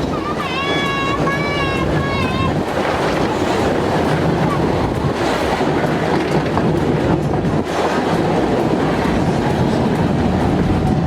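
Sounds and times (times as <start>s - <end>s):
train running: 0.0s - 11.0s
wheels clicking over rail joints: 0.0s - 11.0s.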